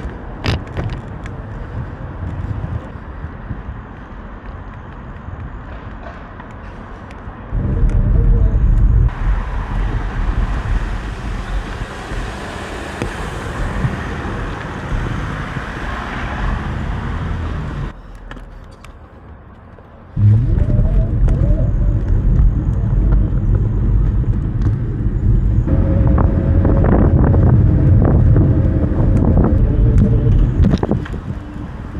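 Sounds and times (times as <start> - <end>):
wind rushing on microphone: 0.0 - 18.0, 20.2 - 31.9
road noise: 0.0 - 31.9.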